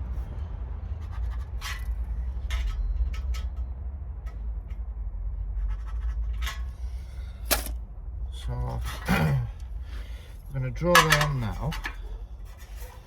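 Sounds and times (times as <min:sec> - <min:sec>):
steady low hum: 0:00.0 - 0:13.0
scribe scratching on steel: 0:00.8 - 0:03.7, 0:05.5 - 0:07.1.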